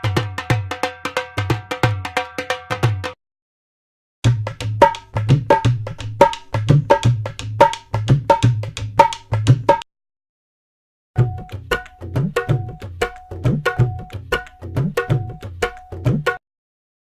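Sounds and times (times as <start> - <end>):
percussion music: 0.0 - 3.2, 4.2 - 9.9, 11.2 - 16.4.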